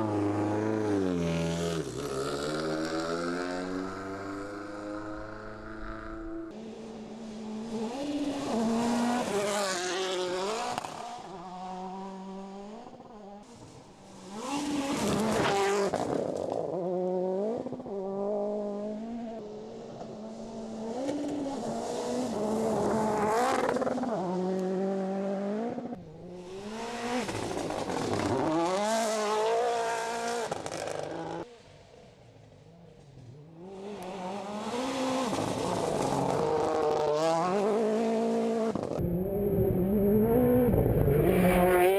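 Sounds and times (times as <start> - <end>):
rally car engine revving hard: 7.2 - 13.6, 14.2 - 31.4, 33.6 - 41.9.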